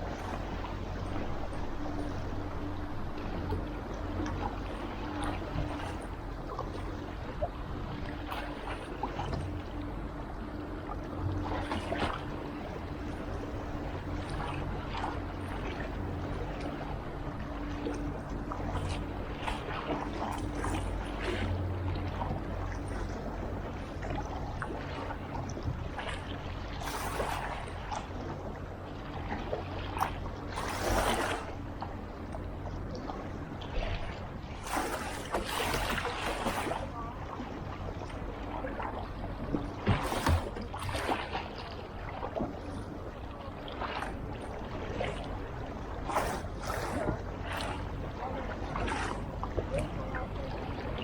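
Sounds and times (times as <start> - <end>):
steady low hum: 0.0 - 51.0
water swishes: 0.0 - 51.0
paddle splashing in water: 8.0 - 9.6, 11.4 - 28.4, 29.0 - 51.0
paddle splashing into water: 34.6 - 36.9, 39.8 - 42.3, 46.0 - 47.8.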